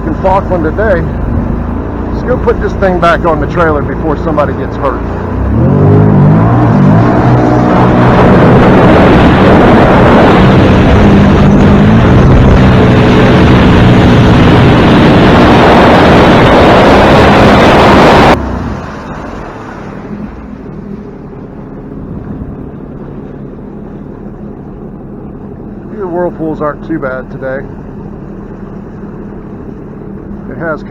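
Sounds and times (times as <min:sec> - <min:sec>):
watercraft engine running: 0:00.0 - 0:30.9
wind and water rushing: 0:00.0 - 0:30.9.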